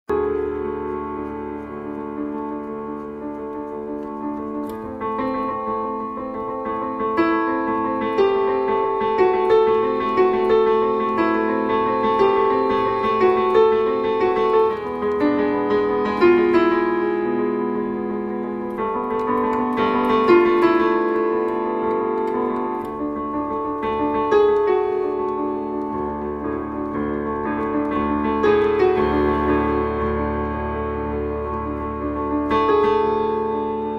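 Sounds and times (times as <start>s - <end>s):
slow sad piano melody: 0.1s - 33.9s.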